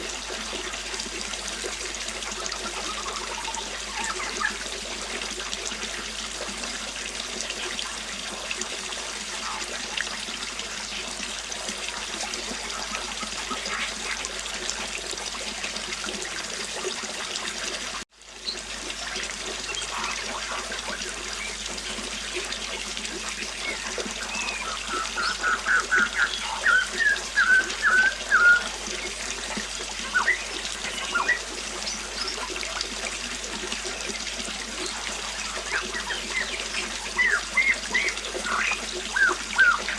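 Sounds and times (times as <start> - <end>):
river water flowing: 0.0 - 39.9
bird chirping: 23.6 - 29.2, 30.0 - 32.5, 34.8 - 39.9.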